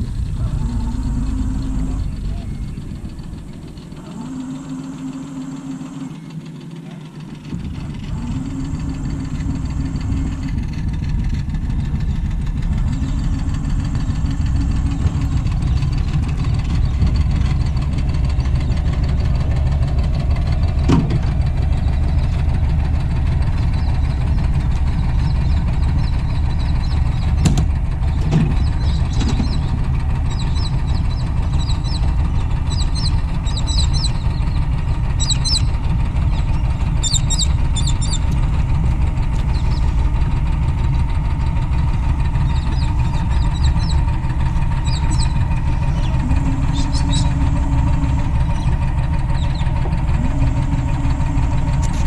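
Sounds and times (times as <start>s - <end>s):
engine rumbling: 0.0s - 52.0s
sharp knocks: 27.4s - 28.6s.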